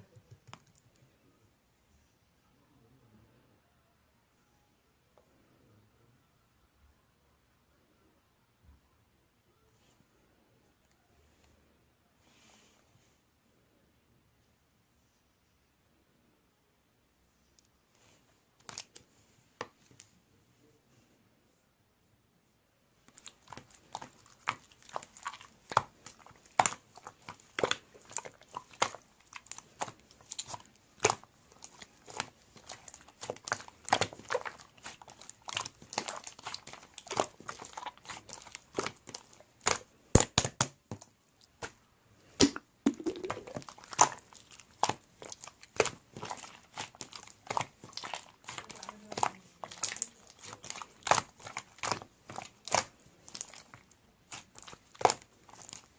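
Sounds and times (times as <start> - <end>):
hands squishing slime: 18.0 - 20.1, 23.0 - 55.9.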